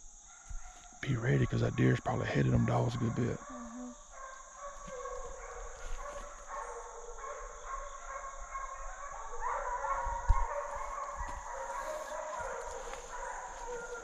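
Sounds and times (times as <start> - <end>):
hounds baying: 2.4 - 14.0.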